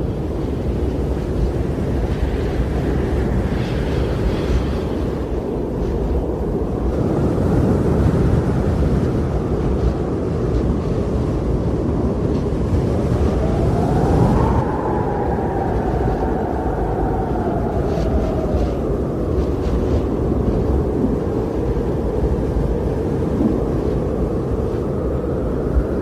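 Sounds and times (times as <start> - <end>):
wind blowing and whistling: 0.0 - 26.0.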